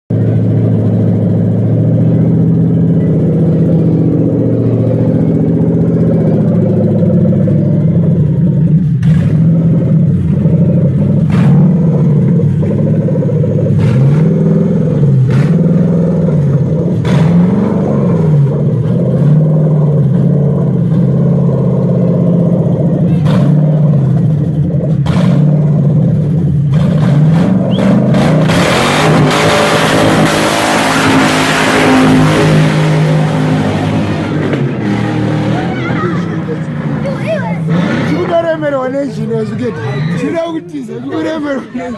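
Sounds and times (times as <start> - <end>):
car engine revving: 0.1 - 39.6
loud rushing noise: 26.8 - 38.6.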